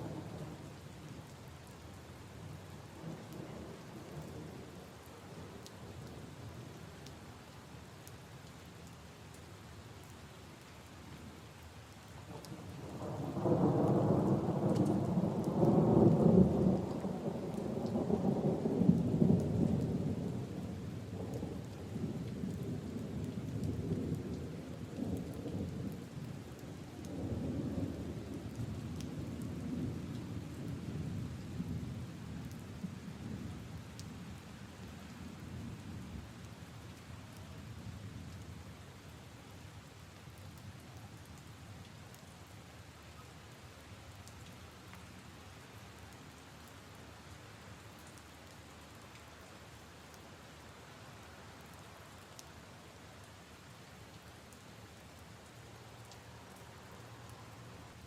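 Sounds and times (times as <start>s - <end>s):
rain falling on puddles and leaves: 0.0s - 58.0s
low roll of thunder: 12.3s - 26.3s.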